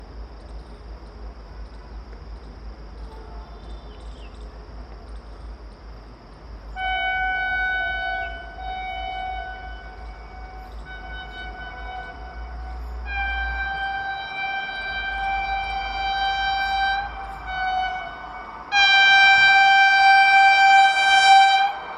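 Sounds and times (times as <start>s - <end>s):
electric train horn: 3.0s - 4.1s, 6.7s - 21.9s.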